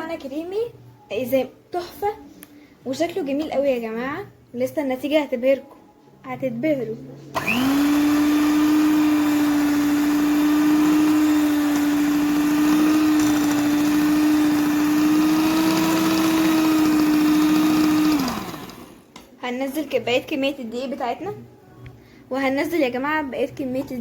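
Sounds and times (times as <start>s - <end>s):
electric hand mixer beating dough: 7.4s - 19.0s.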